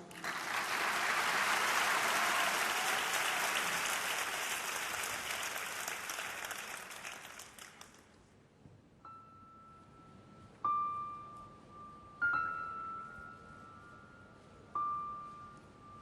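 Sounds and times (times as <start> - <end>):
large audience applauding: 0.0 - 8.1.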